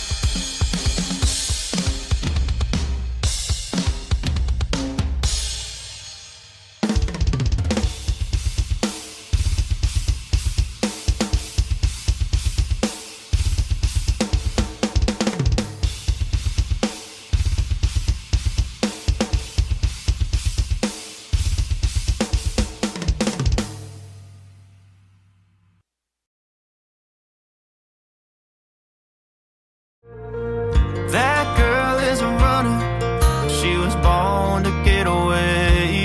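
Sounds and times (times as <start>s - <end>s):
cymbal decaying: 0.0s - 3.8s
drum kit beat: 0.0s - 25.0s, 30.8s - 36.0s
deep bass: 30.2s - 36.0s.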